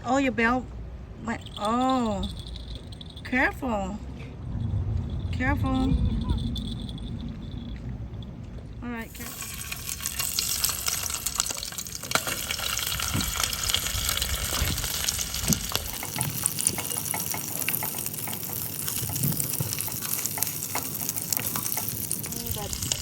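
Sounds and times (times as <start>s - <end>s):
food sizzling in a pan: 9.1s - 23.0s.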